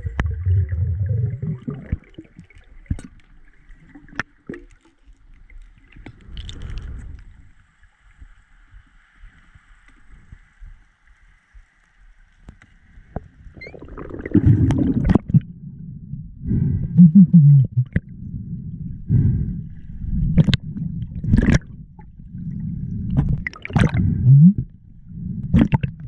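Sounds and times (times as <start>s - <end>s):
water gurgling and bubbling: 0.0s - 3.1s, 13.6s - 15.7s, 16.5s - 26.0s
faint steady hiss: 1.3s - 14.0s
sharp underwater clicks: 20.4s - 22.1s, 25.4s - 26.0s.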